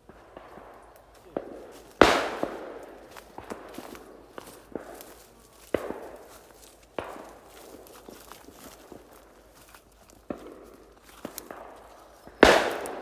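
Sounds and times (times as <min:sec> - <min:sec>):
footsteps crunching through brush: 0:00.0 - 0:13.0
shotgun shots with echo: 0:00.1 - 0:06.4, 0:11.3 - 0:13.0.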